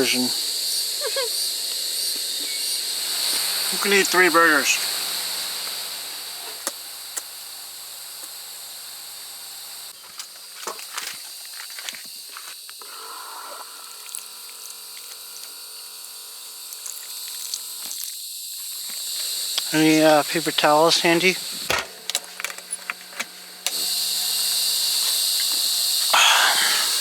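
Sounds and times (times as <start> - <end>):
insects trilling: 0.0 - 7.4, 9.6 - 27.0
sharp clicks and knocks: 21.7 - 23.8.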